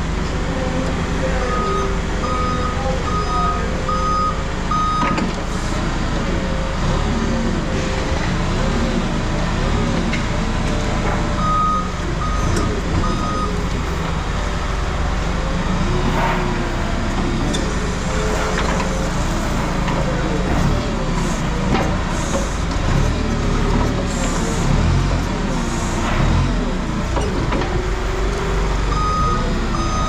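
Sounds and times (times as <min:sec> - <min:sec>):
heavy vehicle engine running: 0:00.0 - 0:30.0
backup alarm beeping: 0:01.4 - 0:05.9, 0:11.4 - 0:30.0.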